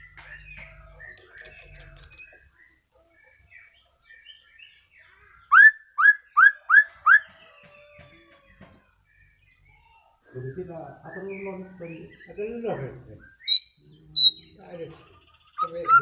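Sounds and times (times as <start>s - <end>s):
bird chirps and twitters: 0.0s - 16.0s
loud rising whistled bird notes: 5.5s - 7.2s.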